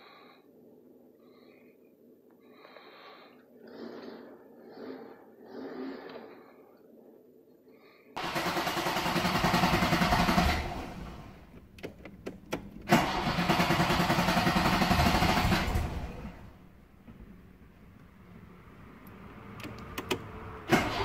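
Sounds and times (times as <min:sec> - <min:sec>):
race car engine running: 0:08.2 - 0:11.5, 0:12.6 - 0:16.6.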